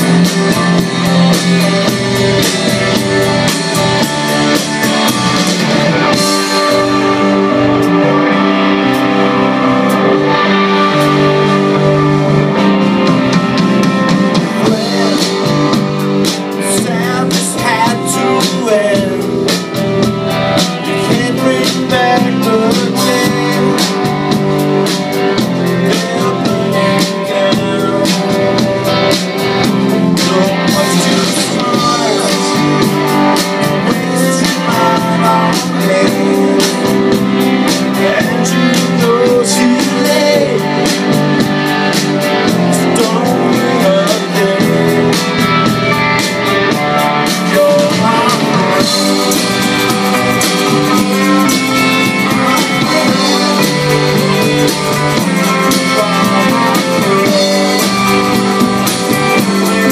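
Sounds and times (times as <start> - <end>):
electric guitars: 0.0 - 59.9
rock band playing live: 0.0 - 59.9.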